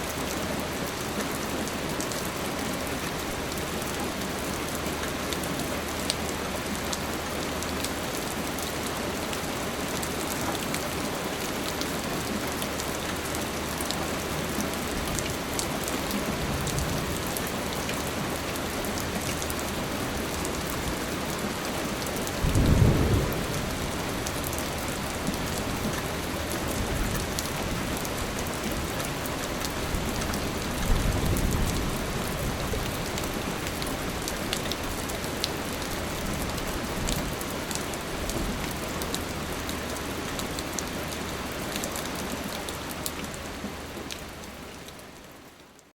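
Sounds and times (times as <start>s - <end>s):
steady rain falling: 0.0s - 45.9s
thunder rumbling: 22.4s - 26.2s.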